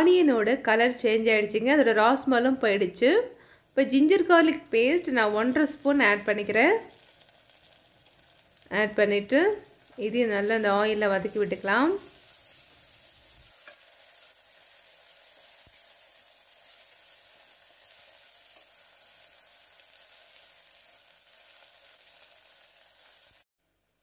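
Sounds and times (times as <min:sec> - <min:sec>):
onions frying in oil: 0:04.6 - 0:23.5.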